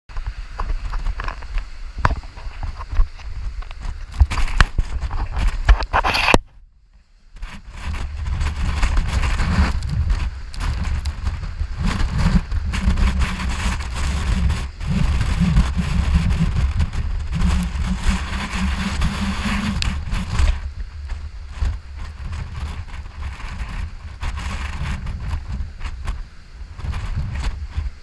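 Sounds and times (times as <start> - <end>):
wind buffeting microphone: 7.4 - 28.0.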